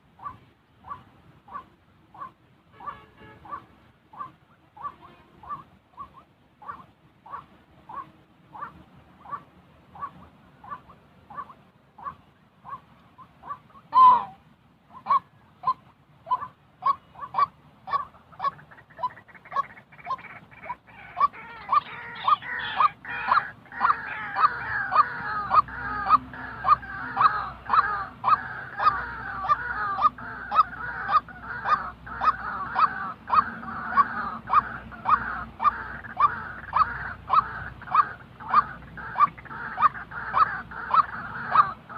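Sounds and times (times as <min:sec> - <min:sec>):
gliding bird call: 0:00.2 - 0:41.9
waterhen calling short notes: 0:10.0 - 0:41.8
croaking chorus: 0:15.1 - 0:41.9.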